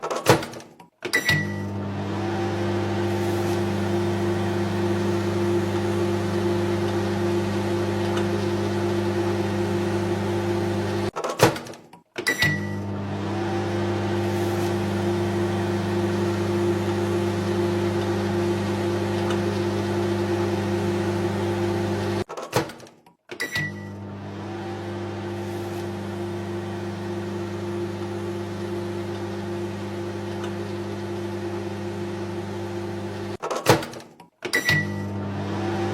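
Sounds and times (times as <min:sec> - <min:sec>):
short microwave beep: 0:01.2 - 0:01.7, 0:12.3 - 0:12.9, 0:23.5 - 0:24.0, 0:34.6 - 0:35.1
microwave oven humming: 0:01.3 - 0:11.2, 0:12.4 - 0:22.3, 0:23.6 - 0:33.4, 0:34.7 - 0:35.9.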